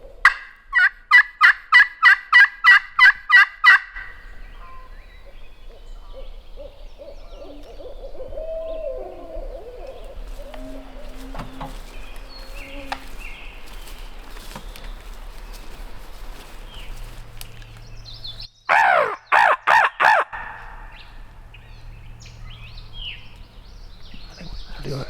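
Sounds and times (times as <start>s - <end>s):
faint songbird chirps: 4.0s - 25.0s
crow call harsh caws: 18.7s - 21.3s.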